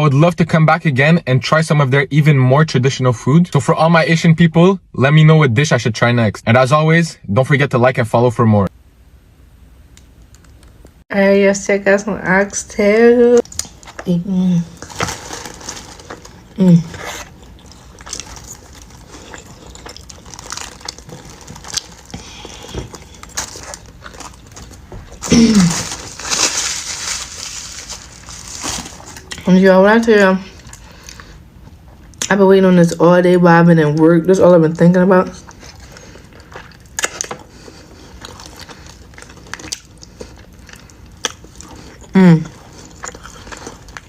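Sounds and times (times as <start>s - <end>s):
wet biting and chewing: 13.4s - 14.0s, 14.8s - 25.3s, 35.4s - 44.0s.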